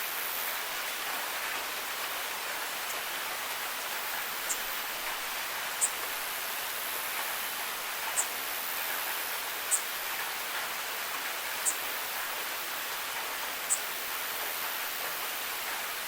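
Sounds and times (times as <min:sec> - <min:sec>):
steady rain: 0:00.0 - 0:16.0
sharp high-pitched ticks: 0:04.4 - 0:05.2, 0:09.7 - 0:09.9, 0:13.6 - 0:14.5.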